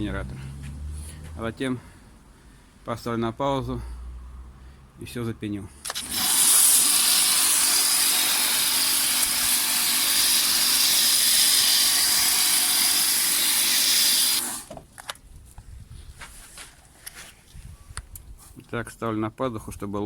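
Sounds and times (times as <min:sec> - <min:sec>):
pressure washer spraying: 0:05.9 - 0:14.7.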